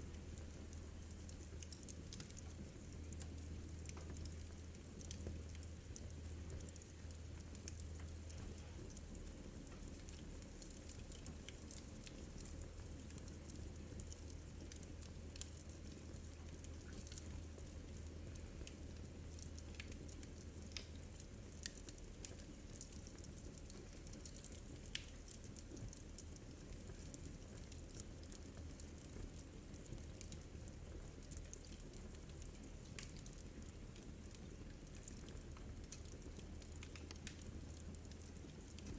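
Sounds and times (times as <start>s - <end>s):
fire snaps and pops: 0.0s - 38.9s
wood fire crackling: 0.0s - 38.9s.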